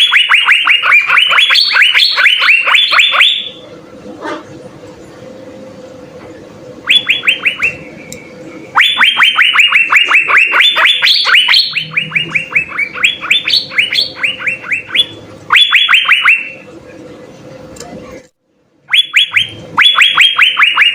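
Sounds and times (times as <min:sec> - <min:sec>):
bird whistling descending notes: 0:06.8 - 0:08.1, 0:08.8 - 0:16.5.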